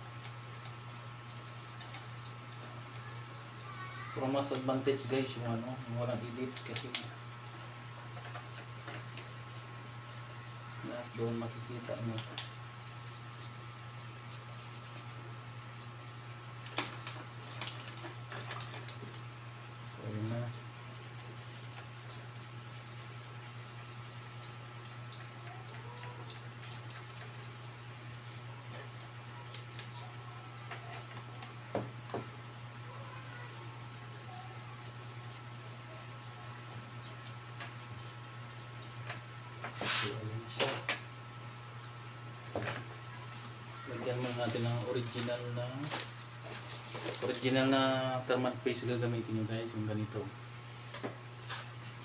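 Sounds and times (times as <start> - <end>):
light scratching of small objects: 0.0 - 5.4, 8.0 - 19.2, 20.0 - 31.2, 33.0 - 40.2, 43.2 - 47.9, 50.6 - 52.0
steady low hum: 0.0 - 52.0
rustling scraping handling noises: 34.8 - 40.2, 42.6 - 47.9, 50.6 - 52.0.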